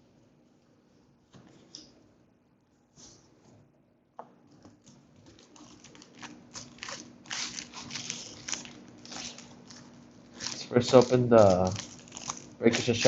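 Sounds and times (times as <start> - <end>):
plastic and foil crinkling: 4.8 - 13.0.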